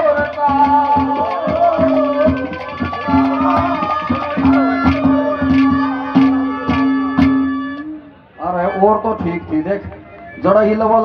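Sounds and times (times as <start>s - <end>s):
hand drum beating: 0.0s - 7.9s.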